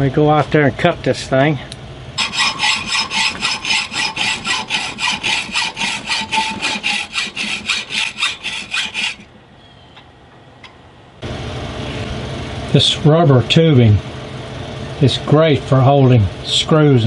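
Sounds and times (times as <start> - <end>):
hand saw cutting metal screw: 2.2 - 9.3.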